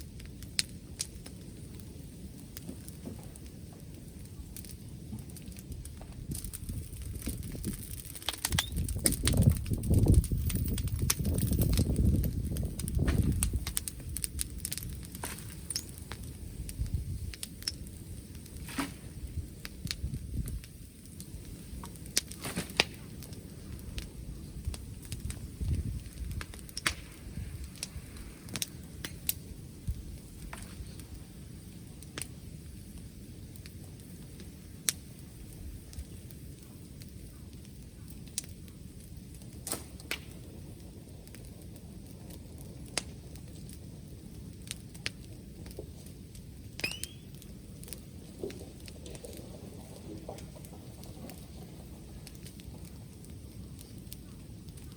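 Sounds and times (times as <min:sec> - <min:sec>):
wood fire crackling and popping: 0:00.0 - 0:54.9
wind buffeting microphone: 0:02.0 - 0:33.2.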